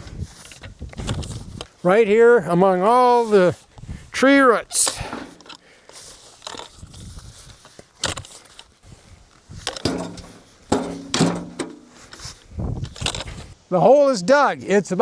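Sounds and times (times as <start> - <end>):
post hole digger thudding into clay: 4.9 - 5.5, 9.7 - 12.2.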